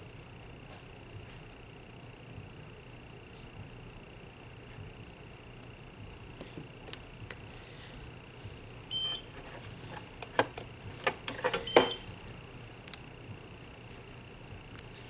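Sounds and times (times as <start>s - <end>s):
handling clicks and taps: 9.6s - 13.1s.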